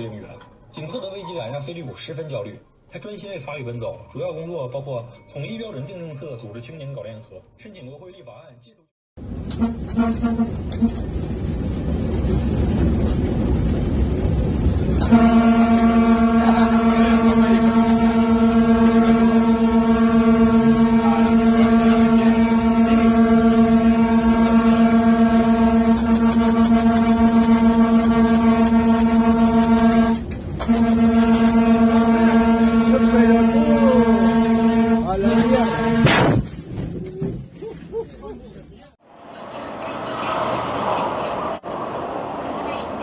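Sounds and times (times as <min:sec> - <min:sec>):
low steady horn blaring: 0:09.2 - 0:11.2, 0:15.0 - 0:36.4
loud rumbling noise: 0:09.2 - 0:37.3, 0:39.0 - 0:43.0.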